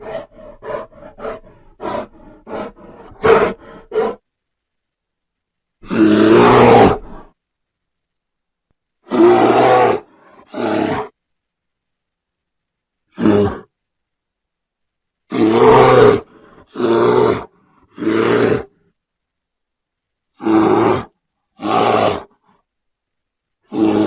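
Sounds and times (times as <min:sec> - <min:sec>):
bear grunting: 0:00.0 - 0:04.2, 0:15.3 - 0:18.8, 0:20.4 - 0:22.5, 0:23.6 - 0:24.0
bear roaring: 0:00.0 - 0:04.2, 0:05.8 - 0:07.3, 0:09.0 - 0:11.2, 0:13.1 - 0:13.7, 0:15.3 - 0:18.8, 0:20.4 - 0:22.5, 0:23.6 - 0:24.0.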